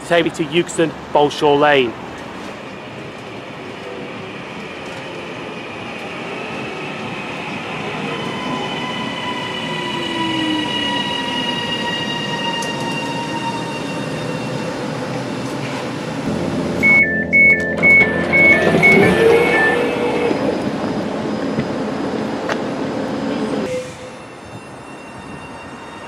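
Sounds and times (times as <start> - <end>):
train pulling into platform: 0.0 - 26.0
steady high tones: 16.3 - 22.2
falling brake whine: 16.3 - 22.4.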